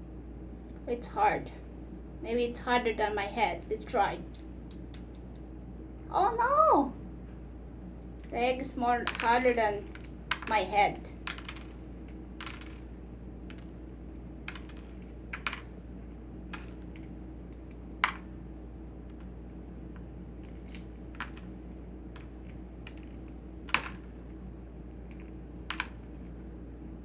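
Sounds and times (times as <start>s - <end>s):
low hum: 0.0s - 27.0s
eggshells cracking: 9.0s - 26.4s.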